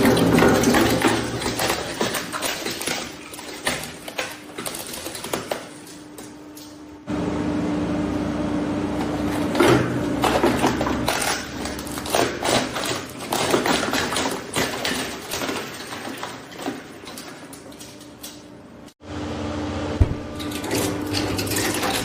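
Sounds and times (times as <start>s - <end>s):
shredder motor humming: 0.0s - 4.9s, 7.0s - 17.0s, 19.0s - 22.0s
hard plastic cracking and crunching: 9.5s - 18.4s.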